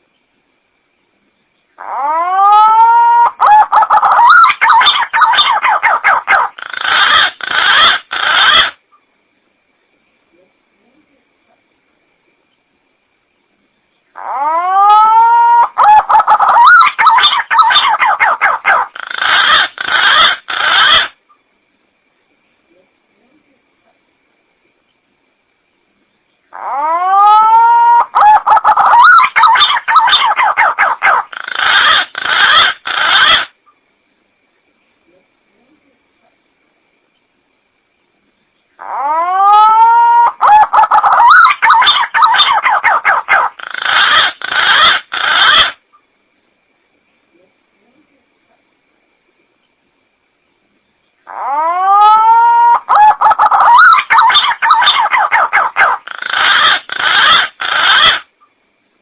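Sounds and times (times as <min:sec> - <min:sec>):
pigeon rough calls: 0:01.8 - 0:08.8, 0:14.2 - 0:21.2, 0:26.5 - 0:33.6, 0:38.8 - 0:45.8, 0:51.3 - 0:58.3
pigeon whistled calls: 0:51.4 - 0:58.3.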